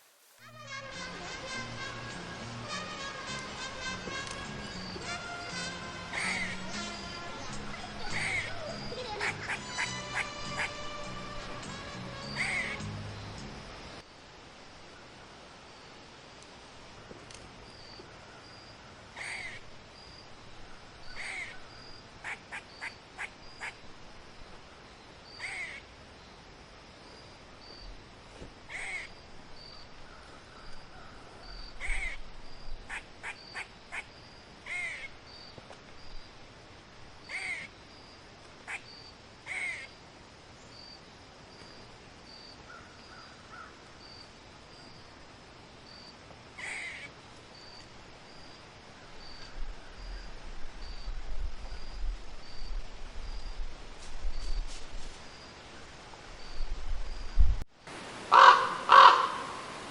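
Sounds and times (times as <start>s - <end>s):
loud bird calls: 4.1s - 11.0s, 12.2s - 13.5s, 17.8s - 20.2s, 20.8s - 23.9s, 24.7s - 25.9s, 28.7s - 35.6s, 37.2s - 37.8s, 38.7s - 40.0s, 45.9s - 51.1s, 58.3s - 59.8s.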